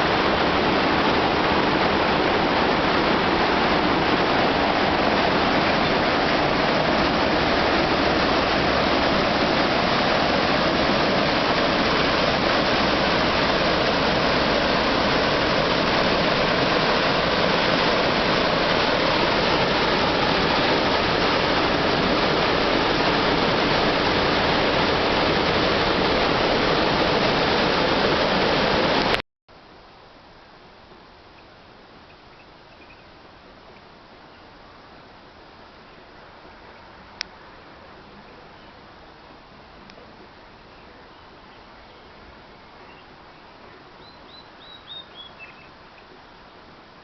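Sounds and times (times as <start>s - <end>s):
water pouring over rocks: 0.0s - 29.2s.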